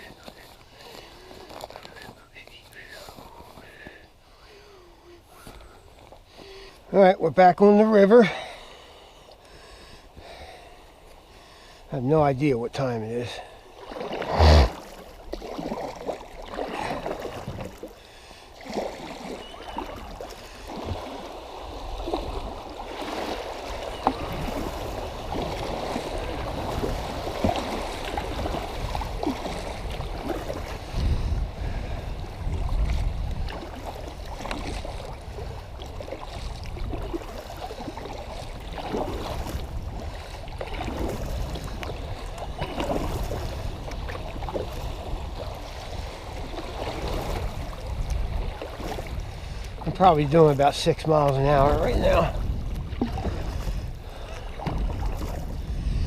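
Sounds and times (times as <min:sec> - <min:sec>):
water sloshing against a kayak: 0:00.0 - 0:56.0
small splashes: 0:13.7 - 0:30.8, 0:32.9 - 0:49.9
wind rumble on microphone: 0:20.8 - 0:56.0.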